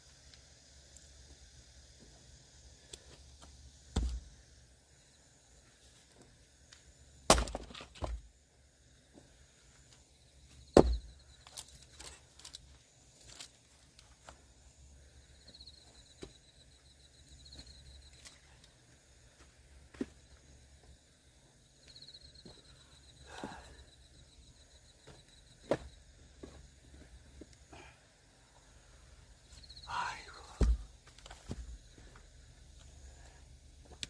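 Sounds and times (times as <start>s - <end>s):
axe splitting firewood: 3.9s - 4.3s, 7.2s - 8.3s, 10.8s - 12.2s, 30.5s - 31.8s.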